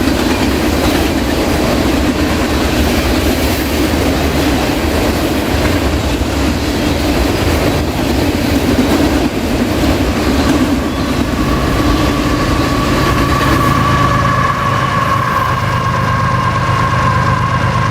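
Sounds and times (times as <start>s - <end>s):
freight train wheels clattering: 0.0s - 17.9s
steady high-pitched tone: 10.0s - 17.9s.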